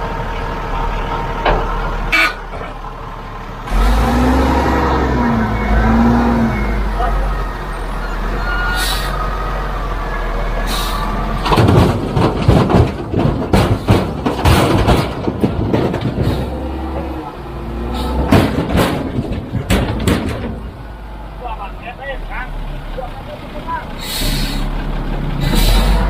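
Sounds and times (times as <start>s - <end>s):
diesel machinery rumbling: 0.0s - 26.0s
metallic clattering and knocking: 11.4s - 17.2s, 18.2s - 20.9s.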